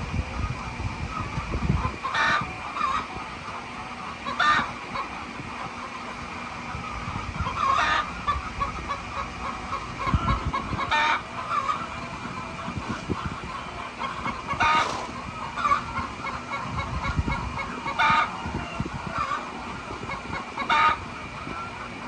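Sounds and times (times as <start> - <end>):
chickens calling: 10.1 - 16.5
chickens clucking: 14.6 - 15.8.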